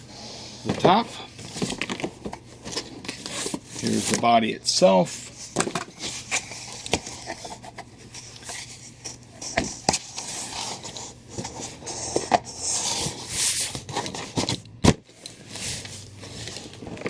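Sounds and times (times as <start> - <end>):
cardboard rubbing and scraping: 8.2 - 14.5.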